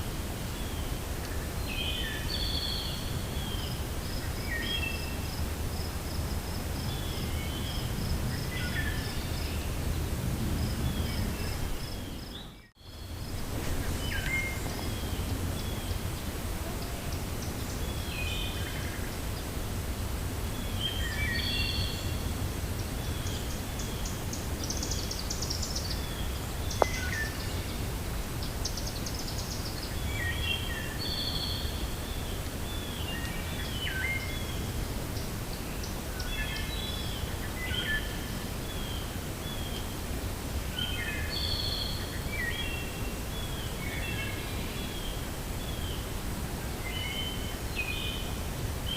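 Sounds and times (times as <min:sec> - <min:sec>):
wind rumbling: 0:00.0 - 0:41.3
birds chirping: 0:00.5 - 0:19.6.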